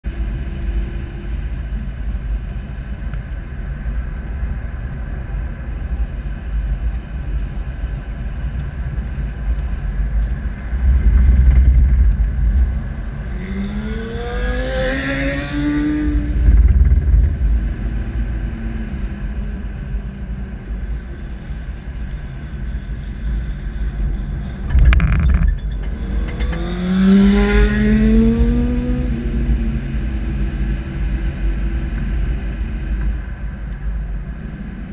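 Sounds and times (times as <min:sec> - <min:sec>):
vehicle engine rumble: 0:00.0 - 0:34.9
wind on microphone: 0:08.8 - 0:34.9
motorcycles accelerating past: 0:10.8 - 0:17.1.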